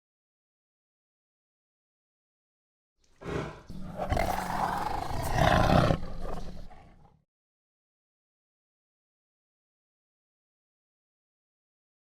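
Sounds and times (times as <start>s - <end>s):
tiger roaring: 3.2s - 7.2s.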